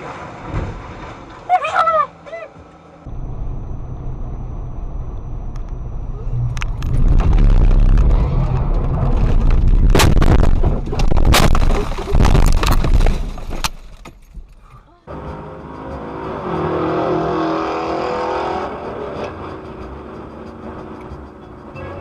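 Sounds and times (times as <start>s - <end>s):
low vehicle rumble: 2.1s - 16.8s
sharp bangs: 6.7s - 14.0s
vehicle collision crash: 6.7s - 14.5s.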